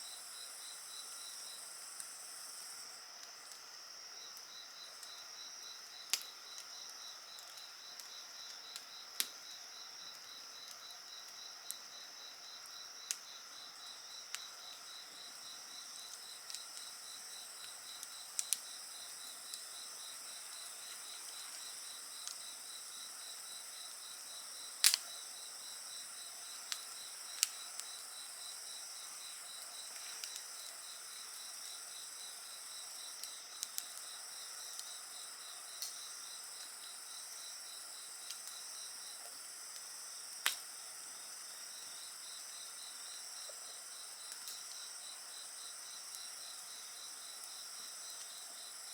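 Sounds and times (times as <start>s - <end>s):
insects chirping: 0.0s - 48.9s
wood fire crackling and popping: 5.8s - 9.4s, 13.0s - 24.0s, 24.7s - 36.9s, 38.2s - 40.7s, 43.2s - 48.4s.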